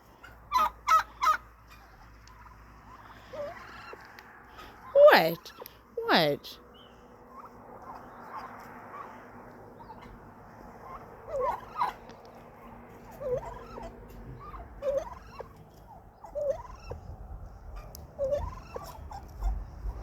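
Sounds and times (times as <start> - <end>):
turkeys calling: 0.0 - 20.0.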